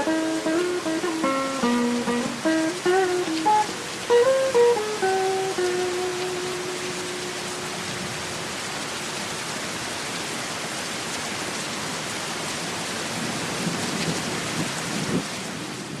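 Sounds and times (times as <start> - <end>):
acoustic guitar note: 0.0 - 7.8
steady rain hiss: 0.0 - 16.0.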